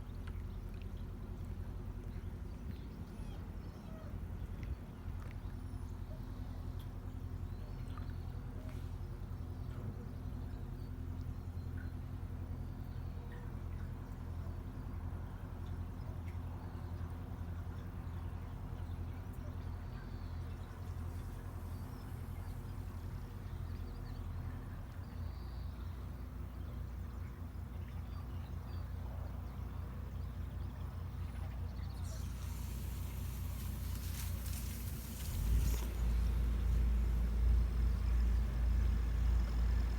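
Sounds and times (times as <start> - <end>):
boat engine humming: 0.0 - 39.9
hiss: 32.0 - 37.4.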